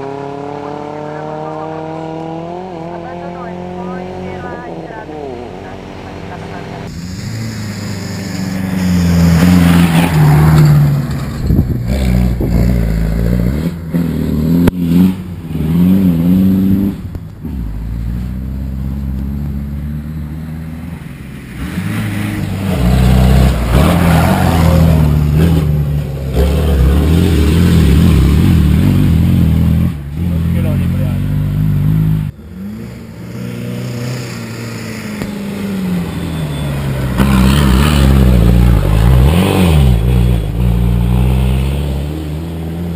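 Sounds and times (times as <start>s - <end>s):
rally car engine revving: 0.0s - 42.9s.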